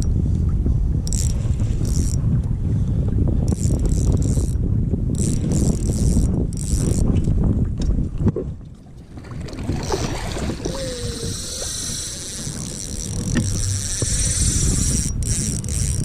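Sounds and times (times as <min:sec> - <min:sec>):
water rumbling against hull: 0:00.0 - 0:16.0
wind on microphone: 0:00.0 - 0:16.0.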